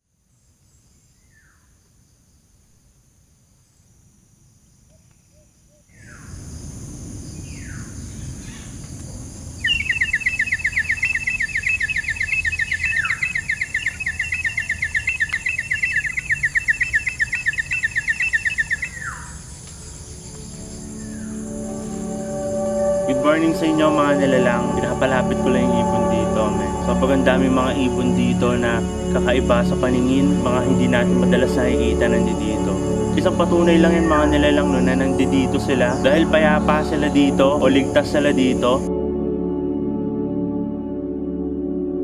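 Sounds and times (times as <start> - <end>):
birds whistling and trilling: 9.6 - 21.4
high-pitched ringing: 20.5 - 38.9.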